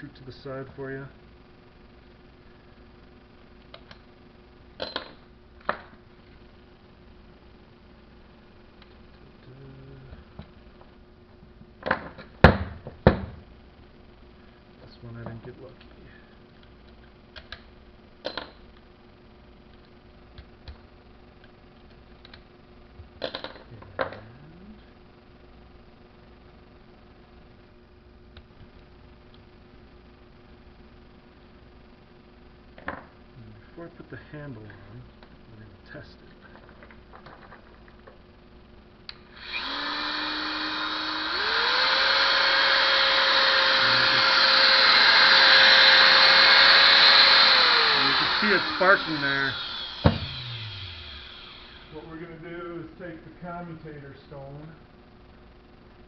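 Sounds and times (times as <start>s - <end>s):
faint hum: 0.0s - 56.0s
angle grinder motor running: 39.3s - 52.2s.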